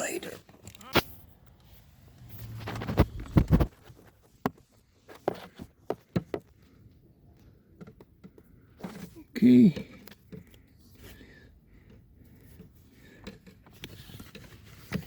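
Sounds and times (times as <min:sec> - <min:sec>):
rustling: 0:01.0 - 0:05.9.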